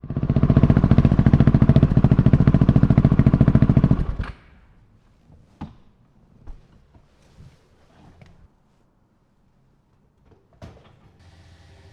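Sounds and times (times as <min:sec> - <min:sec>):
motorcycle engine idling: 0:00.0 - 0:04.2.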